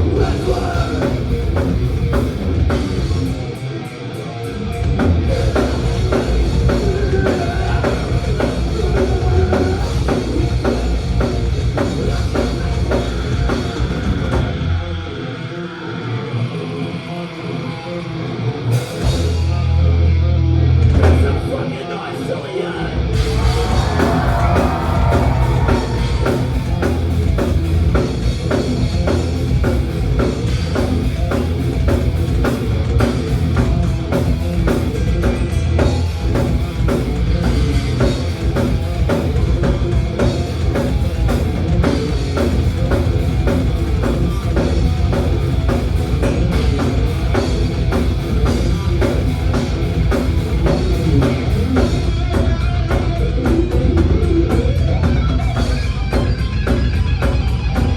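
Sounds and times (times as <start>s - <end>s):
fast driving drumbeat: 0.0s - 3.5s, 4.8s - 14.7s, 23.1s - 57.9s
bass guitar: 0.0s - 57.9s
distorted electric guitars: 0.0s - 57.9s.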